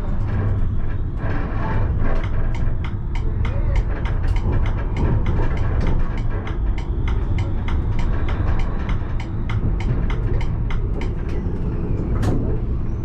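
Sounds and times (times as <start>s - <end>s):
tram rumbling on rails: 0.0s - 13.0s
sharp clicks and ticks: 1.6s - 11.4s.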